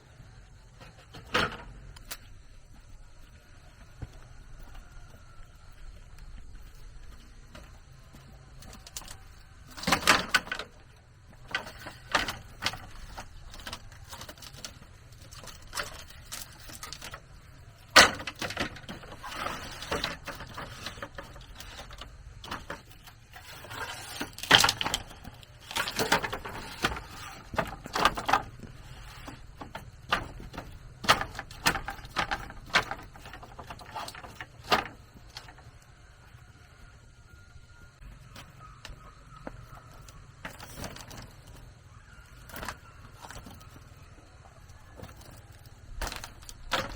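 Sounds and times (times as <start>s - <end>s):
bamboo knocking and clattering: 7.4s - 35.8s, 38.3s - 46.9s.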